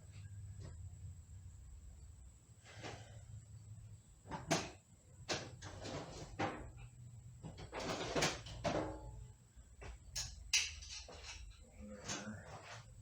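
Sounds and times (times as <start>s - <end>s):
metal tools clanking and scraping: 10.1s - 12.9s.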